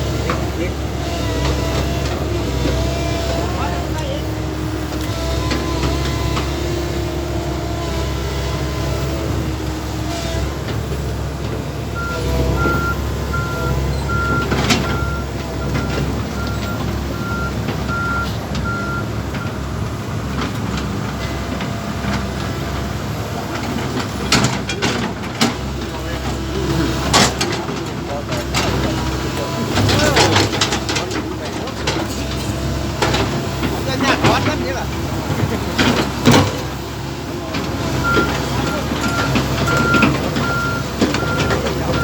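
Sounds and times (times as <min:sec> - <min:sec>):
backhoe engine running: 0:00.0 - 0:42.0
warning alarm beeping: 0:12.0 - 0:19.6.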